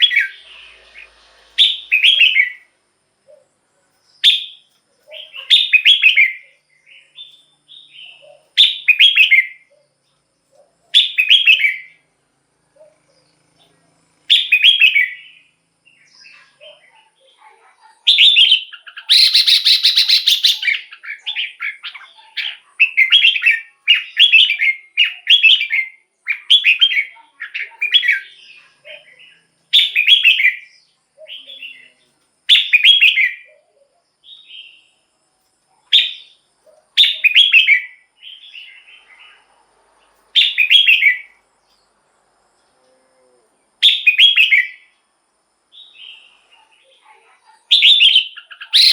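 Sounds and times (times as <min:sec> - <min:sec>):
bird warbling song: 0:00.0 - 0:12.0, 0:18.1 - 0:34.9, 0:36.0 - 0:39.5, 0:47.7 - 0:48.9.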